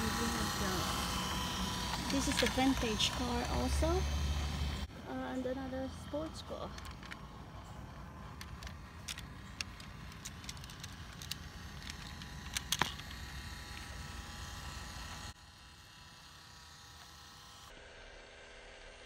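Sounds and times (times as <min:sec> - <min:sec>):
toy train wheels clicking on rails: 0:00.0 - 0:04.3, 0:08.3 - 0:15.3
small electric motor buzzing: 0:00.0 - 0:19.0.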